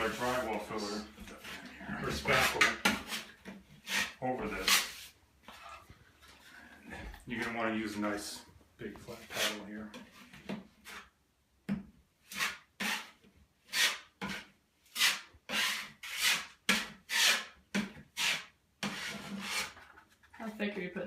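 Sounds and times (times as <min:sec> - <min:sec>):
drywall knife scraping: 0:00.0 - 0:06.6, 0:09.0 - 0:11.2, 0:12.2 - 0:20.0.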